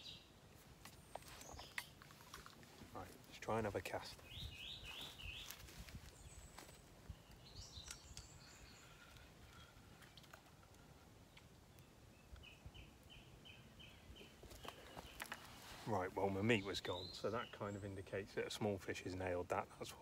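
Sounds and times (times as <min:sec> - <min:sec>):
faint bird calls: 0:03.9 - 0:15.8.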